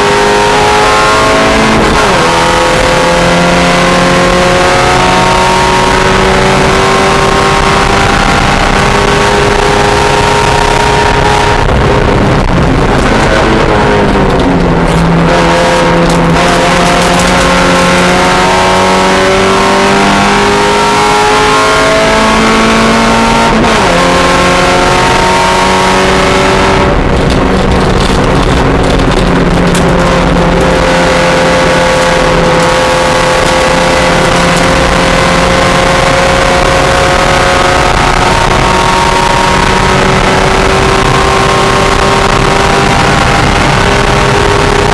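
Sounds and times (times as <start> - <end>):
race car engine at high revs: 0.0 - 44.9.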